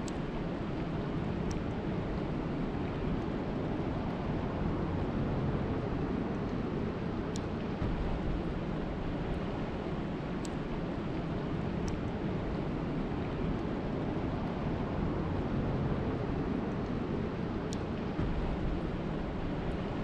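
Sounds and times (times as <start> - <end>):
faint clicks: 10.4 - 11.2.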